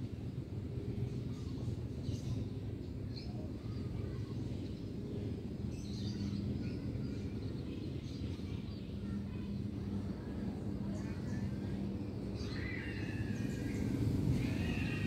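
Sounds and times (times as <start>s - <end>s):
low background rumble: 0.0s - 15.0s
faint bird chirps: 10.8s - 15.0s.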